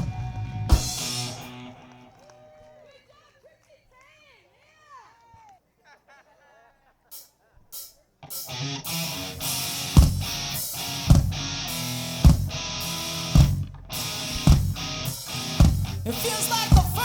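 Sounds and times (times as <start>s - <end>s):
heavy drum hits: 0.0s - 1.5s, 10.0s - 11.4s, 12.2s - 12.6s, 13.4s - 13.7s, 14.4s - 16.0s
live rock band playing: 0.0s - 2.0s, 8.3s - 17.0s
electric guitar chords: 0.0s - 2.1s, 8.2s - 17.0s.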